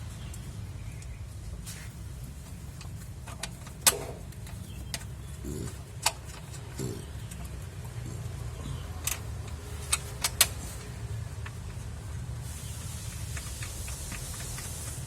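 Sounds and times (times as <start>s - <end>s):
hiss: 12.4s - 15.0s.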